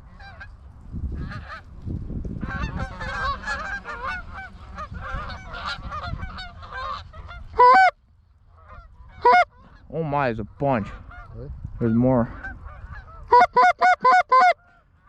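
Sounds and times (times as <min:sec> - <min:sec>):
geese honking: 0:02.4 - 0:09.9, 0:10.7 - 0:15.0
loud close goose honk: 0:02.5 - 0:08.0, 0:08.7 - 0:09.5, 0:12.4 - 0:14.7.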